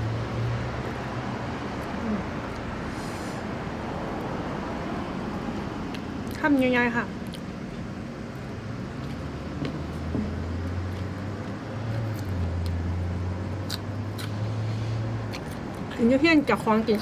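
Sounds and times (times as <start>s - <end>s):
low motor hum: 3.5s - 17.0s.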